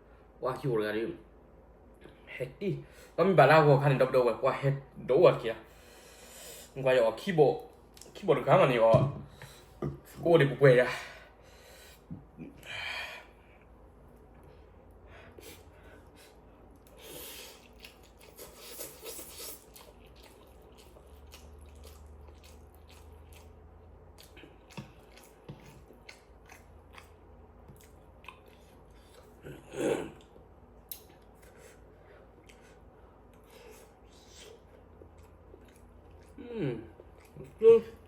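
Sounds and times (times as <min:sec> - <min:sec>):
person chewing noodles: 0:15.4 - 0:38.0.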